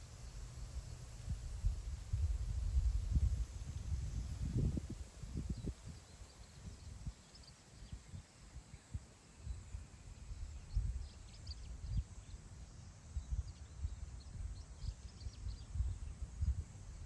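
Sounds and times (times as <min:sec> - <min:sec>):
wind buffeting microphone: 0:01.2 - 0:06.0, 0:13.2 - 0:17.0
faint bird chirps: 0:05.5 - 0:17.0.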